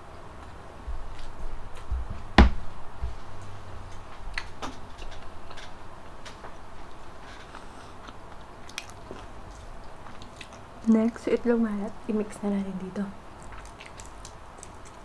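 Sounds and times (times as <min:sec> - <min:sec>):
crunchy food chewing: 0:06.8 - 0:10.9, 0:13.3 - 0:15.0.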